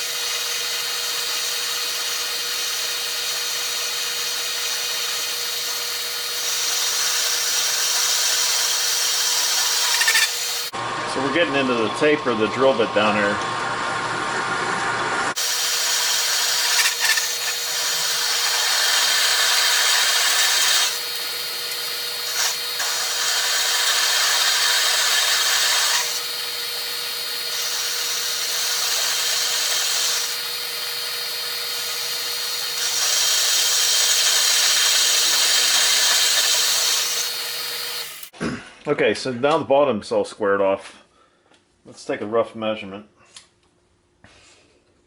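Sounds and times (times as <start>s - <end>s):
hiss of lathe cutting steel: 0.0s - 10.7s, 15.3s - 38.3s
lathe spindle humming: 0.0s - 38.3s.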